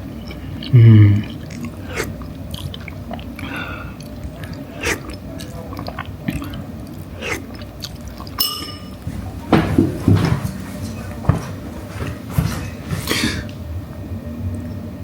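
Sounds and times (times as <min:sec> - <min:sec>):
chewing: 0:00.1 - 0:13.6
tableware clinks: 0:08.4 - 0:10.6.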